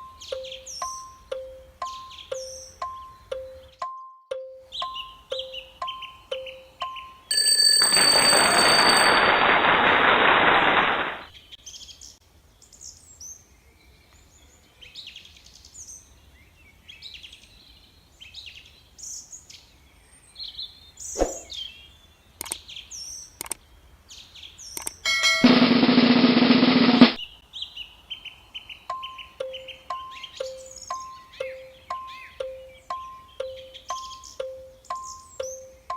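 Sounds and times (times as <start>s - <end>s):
faint bird chirps: 0.0s - 7.2s, 27.3s - 35.9s
loud drum roll: 7.8s - 11.2s, 25.2s - 27.2s
scattered clicks: 7.8s - 11.3s, 22.4s - 22.6s, 23.4s - 23.6s, 24.7s - 25.6s.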